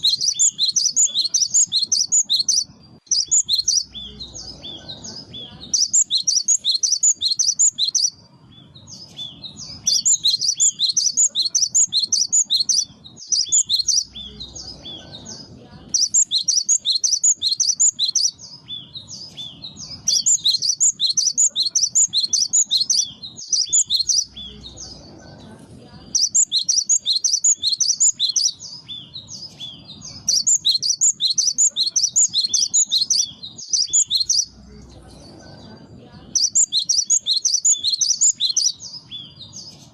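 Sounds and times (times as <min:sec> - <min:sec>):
bird singing high ringing notes: 0:00.0 - 0:04.8, 0:05.7 - 0:14.6, 0:16.0 - 0:24.7, 0:26.1 - 0:29.4, 0:30.2 - 0:34.6, 0:36.4 - 0:39.4.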